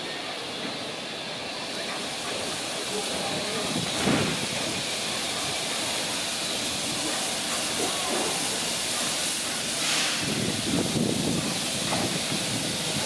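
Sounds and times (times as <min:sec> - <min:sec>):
faint voices: 0:00.0 - 0:09.1
steam train hissing and running: 0:00.0 - 0:13.0.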